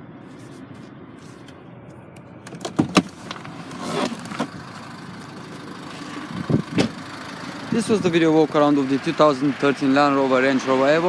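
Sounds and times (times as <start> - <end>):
car rumble: 0.0 - 11.0
brief rustle: 0.2 - 2.0.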